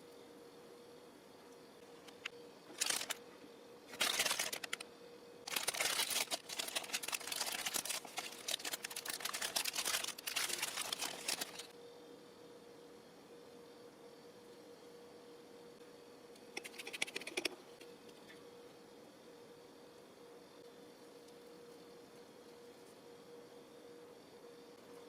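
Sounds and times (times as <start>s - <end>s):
plastic packaging crinkling: 2.7s - 3.2s, 3.9s - 4.8s, 5.5s - 11.7s.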